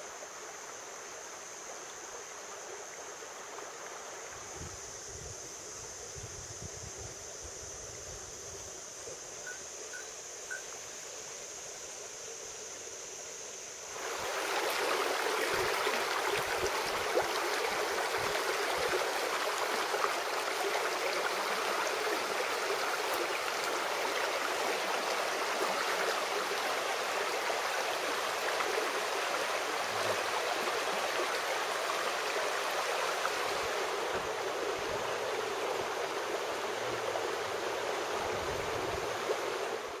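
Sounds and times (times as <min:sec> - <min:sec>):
stream water rushing: 0:00.0 - 0:05.5, 0:09.3 - 0:40.0
faint high steady tone: 0:04.3 - 0:13.8.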